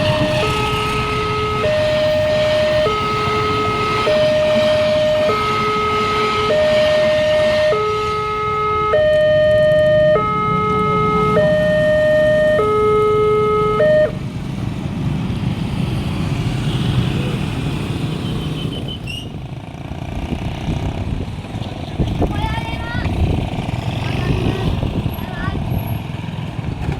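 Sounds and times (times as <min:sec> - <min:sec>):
two-tone level-crossing alarm: 0:00.0 - 0:14.2.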